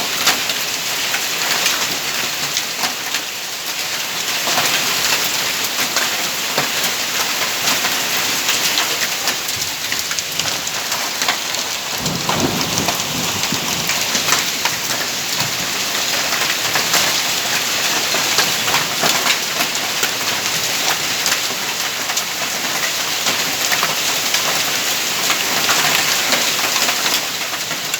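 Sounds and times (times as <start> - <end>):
hail and heavy rain pelting: 0.0 - 27.9
thunder rumbling: 9.2 - 17.2.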